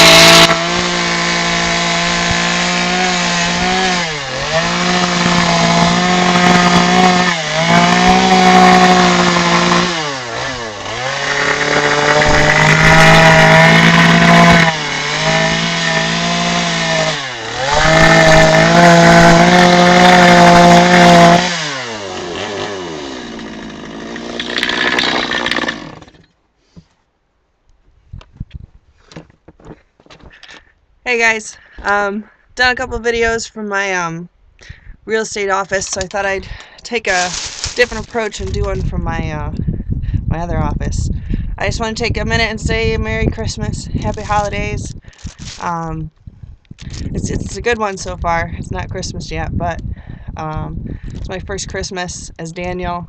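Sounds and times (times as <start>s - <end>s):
chainsaw cutting wood: 0.0s - 26.9s, 35.7s - 39.0s, 44.0s - 45.9s, 46.8s - 47.6s.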